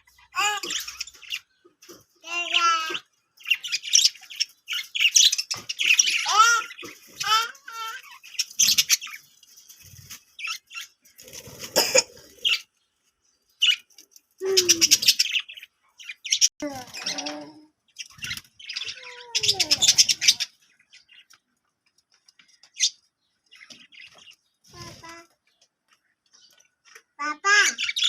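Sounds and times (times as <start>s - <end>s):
budgerigars chirping: 8.2s - 11.4s, 17.9s - 21.3s.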